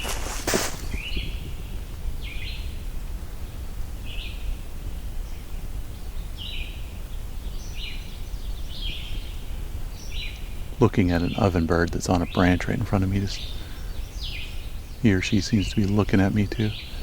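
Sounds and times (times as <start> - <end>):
footstep thump: 0.0 - 1.2
songbird singing: 0.0 - 17.0.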